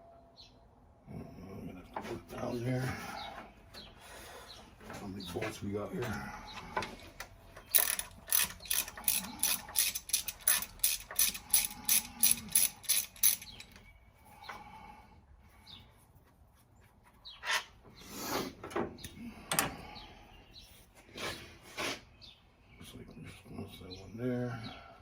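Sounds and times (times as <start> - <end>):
ratchet wrench clicking: 7.7 - 13.8.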